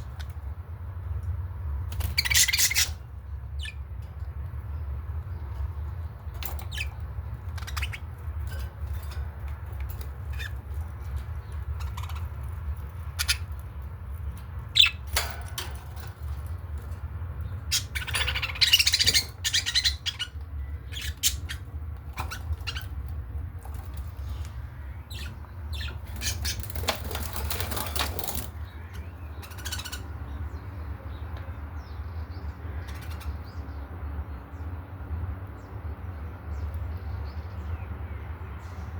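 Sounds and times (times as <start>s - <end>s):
budgerigars chirping and squawking: 0.0s - 31.2s, 31.8s - 34.8s
wings flapping: 26.2s - 28.6s.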